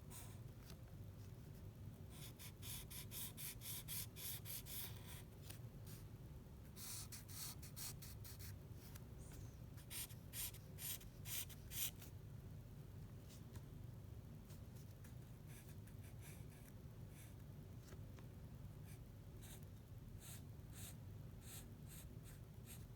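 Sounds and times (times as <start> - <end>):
pencil scratching on paper: 9.8 - 11.9.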